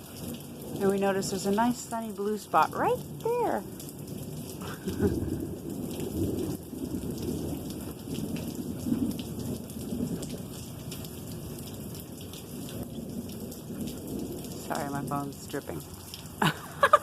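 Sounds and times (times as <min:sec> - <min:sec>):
steady rain: 0:00.0 - 0:17.0
rolling thunder: 0:03.1 - 0:15.1.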